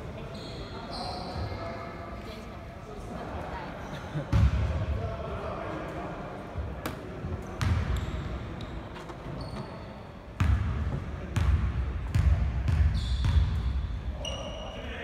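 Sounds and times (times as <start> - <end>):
sneakers squeaking on court: 0.2 - 1.8, 7.4 - 10.7, 11.4 - 14.7
basketball bouncing on court: 7.6 - 8.3, 10.4 - 13.8.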